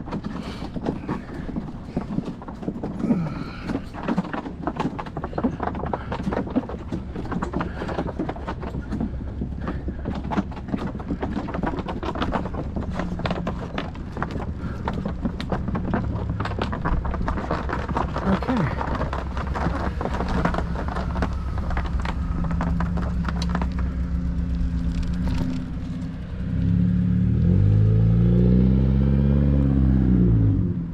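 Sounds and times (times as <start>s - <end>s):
bicycle clicking and rattling: 0.0s - 27.7s
low rumble: 8.7s - 30.9s.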